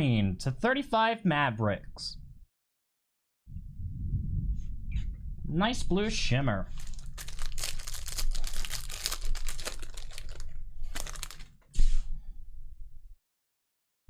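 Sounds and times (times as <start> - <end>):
cards being flipped by hand: 6.8 - 11.6.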